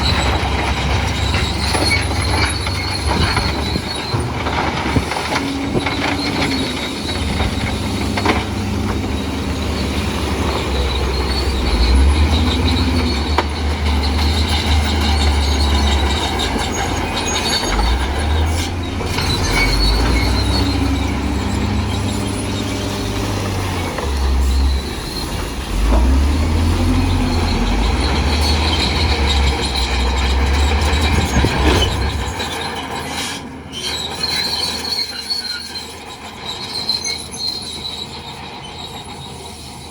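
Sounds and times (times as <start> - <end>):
bulldozer diesel engine rumbling: 0.0 - 39.9
steel tracks squealing and clattering: 0.0 - 39.9.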